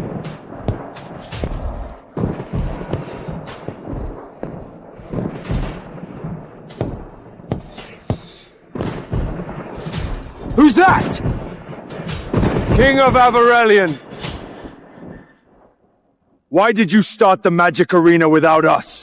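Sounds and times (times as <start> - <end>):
heavy thuds and sharp hits: 0.0 - 10.4
low rumble: 0.0 - 13.2.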